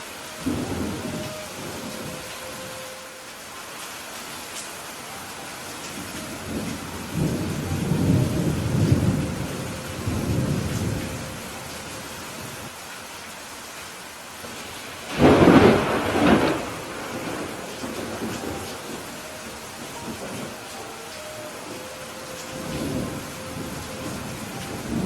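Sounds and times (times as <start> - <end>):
steady rainfall: 0.0 - 25.0
low rolling thunder rumble: 0.4 - 2.9, 5.8 - 12.7, 14.4 - 25.0
sharp thunderclap: 15.1 - 19.0.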